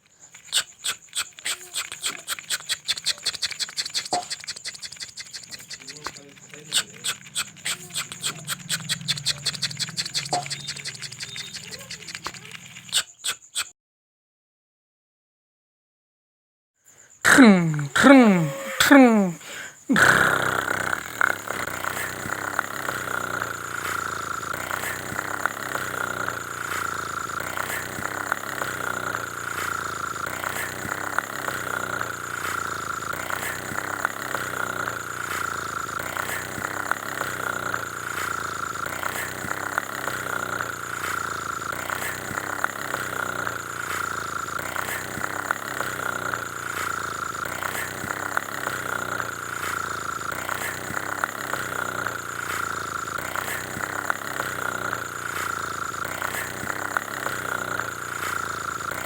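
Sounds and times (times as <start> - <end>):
light ticks: 0.5 - 13.1
engine-like whine: 5.8 - 12.9.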